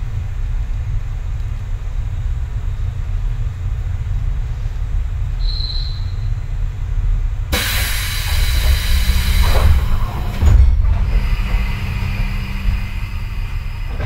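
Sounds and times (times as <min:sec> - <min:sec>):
train wheels rumbling on rails: 0:00.0 - 0:14.0
steady low hum: 0:06.0 - 0:14.0
loud hiss: 0:07.5 - 0:14.0.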